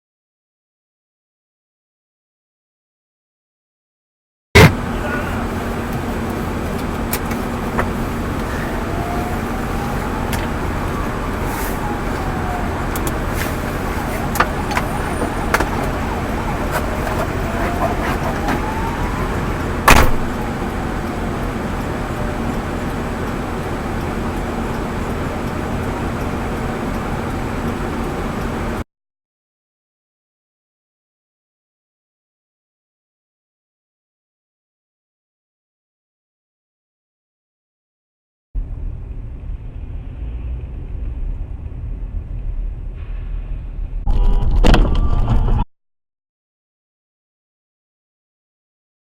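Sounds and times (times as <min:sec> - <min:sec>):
sharp loud bang: 0:04.6 - 0:04.8, 0:19.9 - 0:20.3
car engine and tyre noise: 0:04.6 - 0:28.8, 0:38.6 - 0:45.6
low hum: 0:38.6 - 0:45.7.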